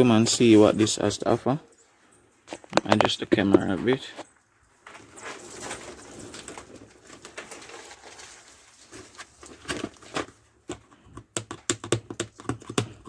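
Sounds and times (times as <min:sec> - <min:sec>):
low rustle of packaging: 0:04.5 - 0:10.5.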